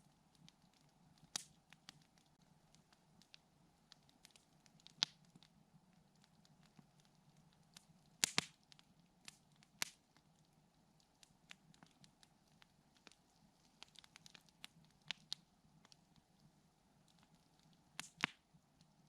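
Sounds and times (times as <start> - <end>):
campfire wood crackling: 0.0 - 19.0
loud pops from fire: 8.2 - 10.0, 18.0 - 18.4.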